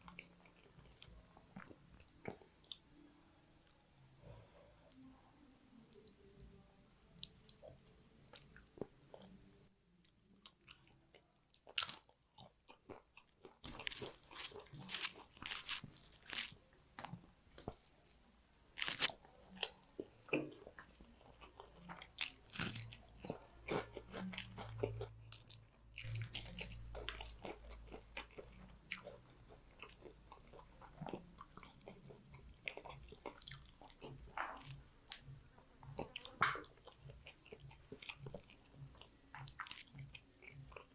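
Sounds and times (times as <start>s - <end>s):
crunchy bites and chewing: 11.6s - 18.2s, 18.8s - 35.3s.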